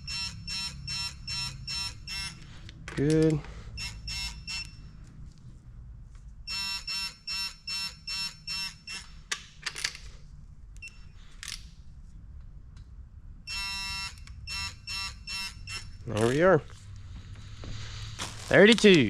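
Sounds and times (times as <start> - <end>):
torque wrench beeping: 0.0 - 2.5, 3.2 - 4.9, 6.5 - 9.2, 13.5 - 16.4.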